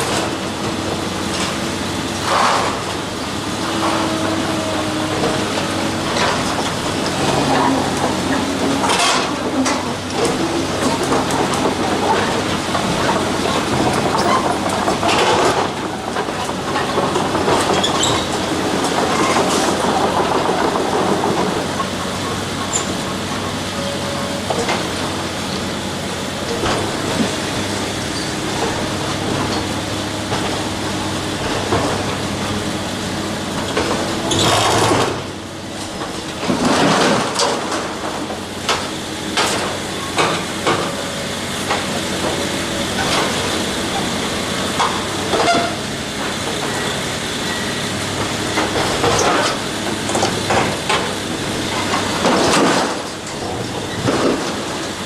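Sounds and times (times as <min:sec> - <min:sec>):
heavy machinery running: 0:00.0 - 0:55.0
clanks and knocks: 0:48.5 - 0:55.0.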